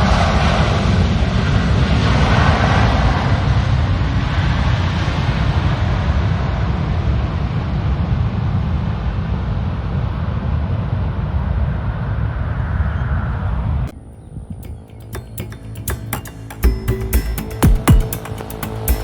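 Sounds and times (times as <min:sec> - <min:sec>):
jet airliner engine rumble: 0:00.0 - 0:14.5.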